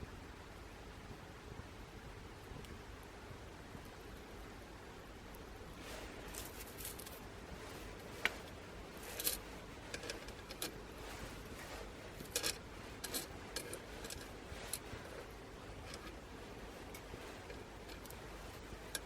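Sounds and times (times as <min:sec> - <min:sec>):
faint steady hiss: 0:00.0 - 0:19.0
twigs crackling in fire: 0:05.7 - 0:19.0.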